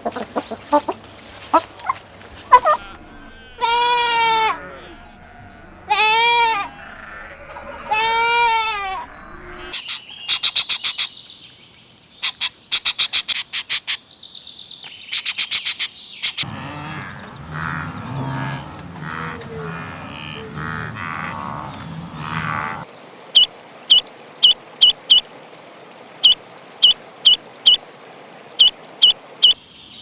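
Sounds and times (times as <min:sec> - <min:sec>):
low busy animal noise: 0:00.0 - 0:09.8, 0:16.4 - 0:25.2
wavering bleat-like animal calls: 0:02.5 - 0:09.8, 0:16.4 - 0:22.8.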